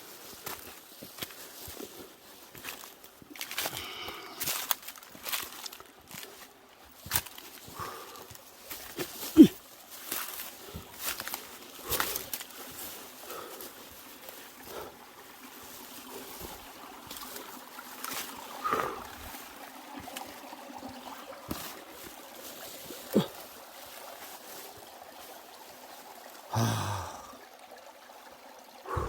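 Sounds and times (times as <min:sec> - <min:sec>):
stream water trickling: 0:00.0 - 0:29.0.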